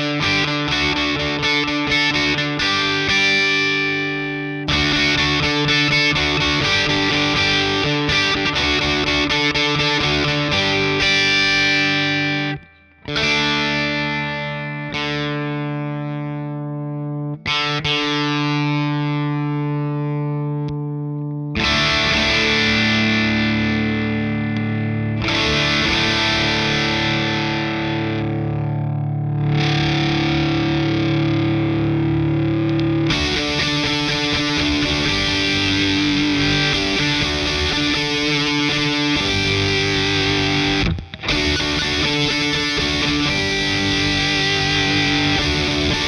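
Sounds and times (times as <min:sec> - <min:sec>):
distorted electric guitar: 0:00.0 - 0:46.0.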